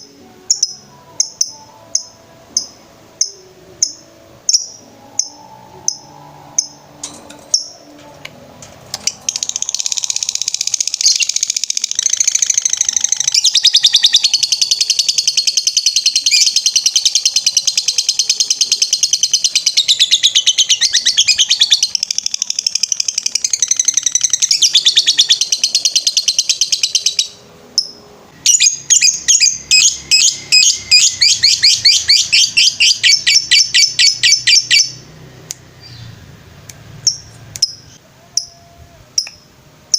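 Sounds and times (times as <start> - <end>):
lovebird rapid high chirping: 7.5 - 7.9, 9.0 - 35.0.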